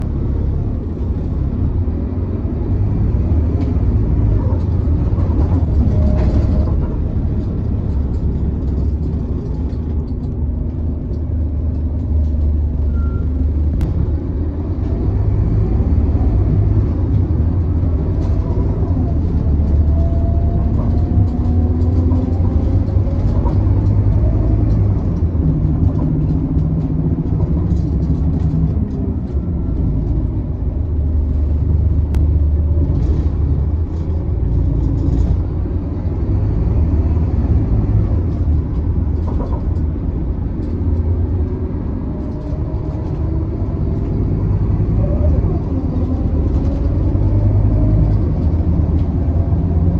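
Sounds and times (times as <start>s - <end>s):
bus engine rumble: 0.0s - 49.9s.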